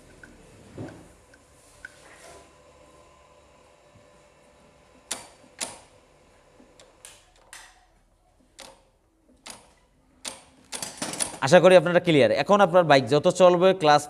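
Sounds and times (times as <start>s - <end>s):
sharp metallic clicks: 8.6s - 11.4s.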